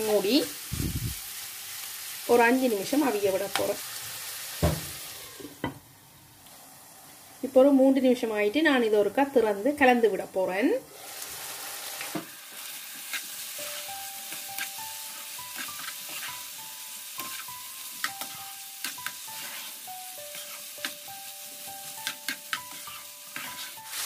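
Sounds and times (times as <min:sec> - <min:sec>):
chicken sizzling in a pan: 0:00.0 - 0:05.7, 0:10.9 - 0:24.0
metal spoon scraping a pan: 0:13.0 - 0:16.6, 0:17.2 - 0:21.1, 0:21.8 - 0:24.0.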